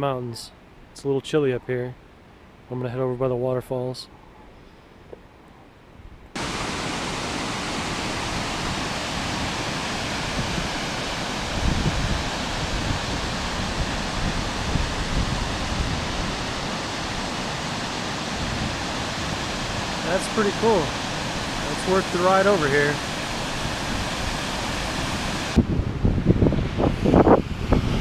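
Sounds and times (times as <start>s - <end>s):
waterfall rushing: 6.4s - 25.7s.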